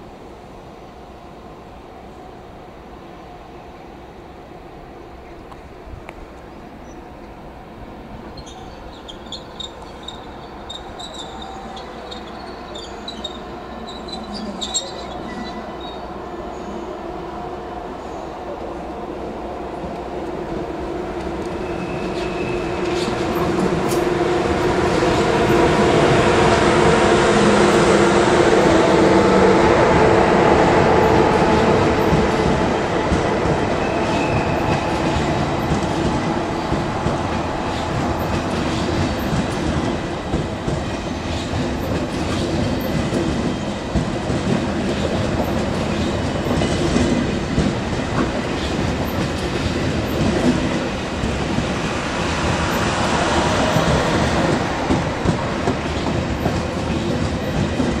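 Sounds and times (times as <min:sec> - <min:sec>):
train rolling along track: 0:00.0 - 0:58.0
faint wheel squeals: 0:08.4 - 0:16.1.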